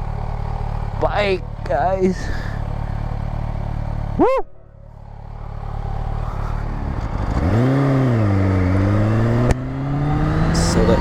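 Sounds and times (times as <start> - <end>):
motorcycle engine accelerating: 0.0 - 11.0
person shouting: 4.2 - 4.6.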